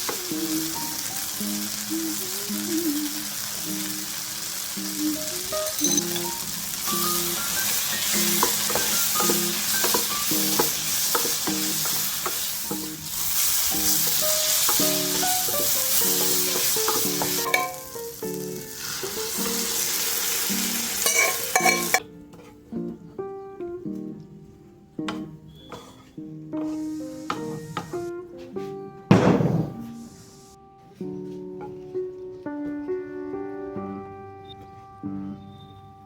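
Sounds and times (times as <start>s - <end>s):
food sizzling in hot oil: 0.0s - 22.0s
background music: 0.0s - 36.0s.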